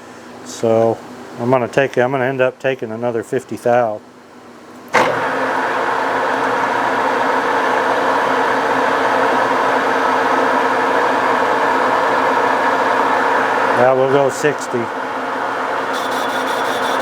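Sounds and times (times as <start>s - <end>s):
metal lathe running: 5.0s - 17.0s.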